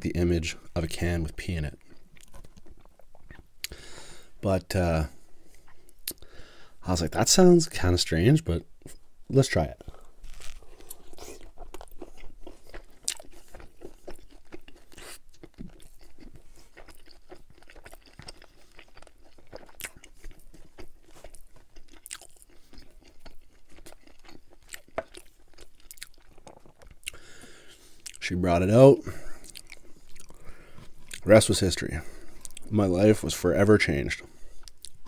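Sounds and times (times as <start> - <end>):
person chewing with crunches: 1.7 - 4.1, 9.8 - 28.3, 29.0 - 33.2, 34.2 - 35.0.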